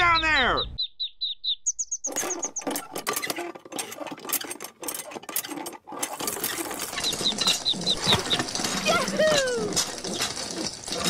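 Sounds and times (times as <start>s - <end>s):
ducklings peeping: 0.0s - 2.8s
hand pump rattling: 2.1s - 11.0s.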